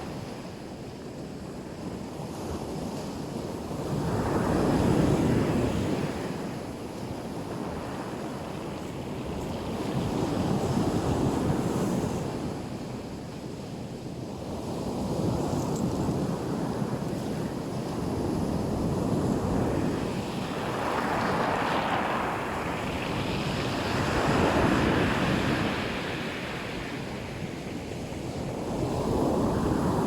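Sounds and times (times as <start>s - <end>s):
waves breaking on shore: 16.4s - 30.0s.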